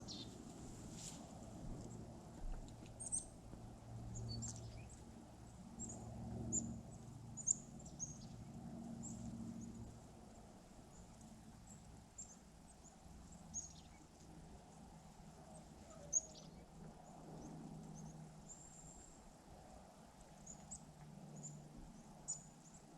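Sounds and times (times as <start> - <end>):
small birds chirping: 0.0 - 0.4, 3.0 - 3.4, 4.1 - 5.0, 7.4 - 8.4, 10.9 - 14.2, 15.5 - 19.2, 20.4 - 22.8
faint low hum: 0.0 - 22.9.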